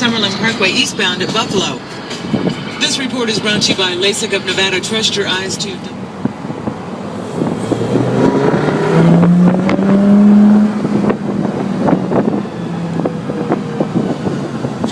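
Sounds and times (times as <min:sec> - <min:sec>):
sports car engine accelerating: 0:05.9 - 0:14.9.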